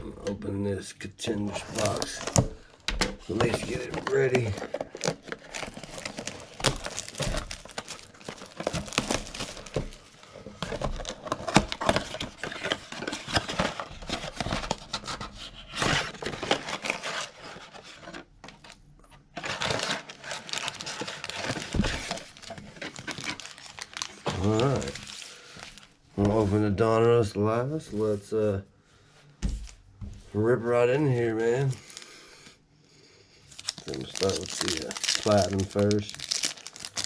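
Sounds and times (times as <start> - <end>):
plastic wrap crinkling and tearing: 1.4 - 18.0, 19.3 - 25.9, 31.3 - 32.2, 33.5 - 37.0.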